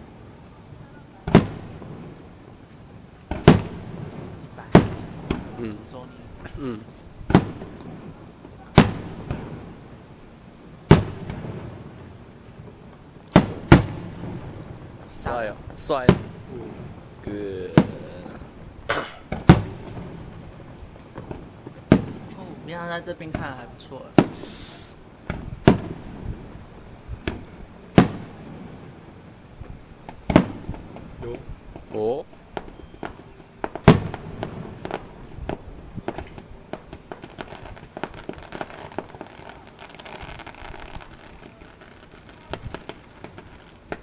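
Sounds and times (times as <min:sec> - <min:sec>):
firework shells bursting: 0:03.2 - 0:09.9, 0:10.8 - 0:22.4, 0:24.1 - 0:29.0, 0:30.0 - 0:44.0.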